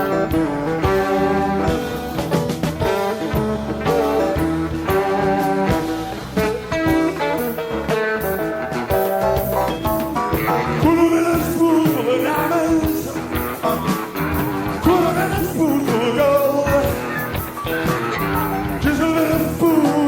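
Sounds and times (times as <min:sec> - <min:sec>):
bass guitar: 0:00.0 - 0:20.0
drums: 0:00.0 - 0:20.0
electric guitar: 0:00.0 - 0:20.0
lead vocal singing: 0:10.4 - 0:20.0.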